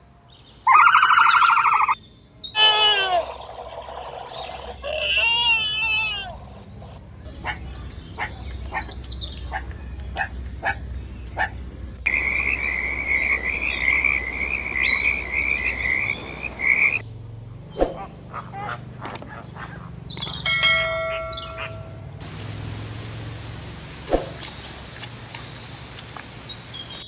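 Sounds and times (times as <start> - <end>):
high trilling call: 0.7 - 6.3, 17.8 - 22.0.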